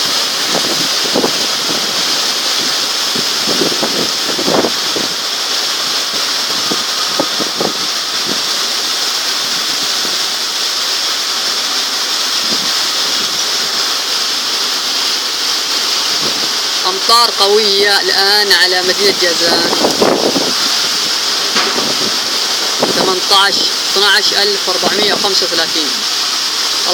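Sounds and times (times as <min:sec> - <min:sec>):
heavy rain pouring: 0:00.0 - 0:26.9
short low thumps: 0:21.5 - 0:23.1.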